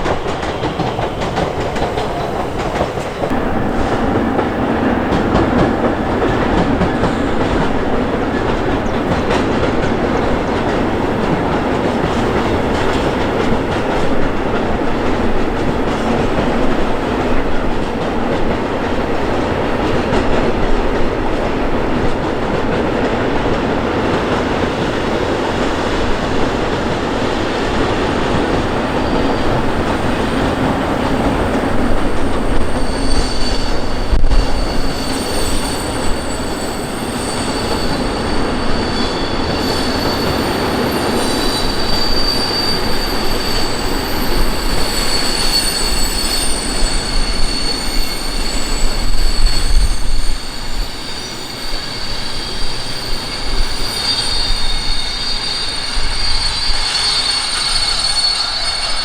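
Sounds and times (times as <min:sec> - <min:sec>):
train wheels rumbling on rail: 0:00.0 - 0:59.0
high wheel squeal: 0:28.6 - 0:59.0.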